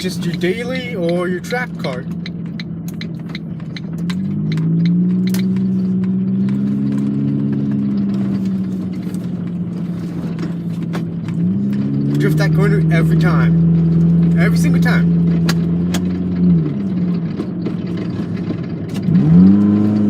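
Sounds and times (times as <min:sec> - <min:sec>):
car engine while driving: 0:00.0 - 0:20.0
clicking rattles in cabin: 0:00.1 - 0:08.8.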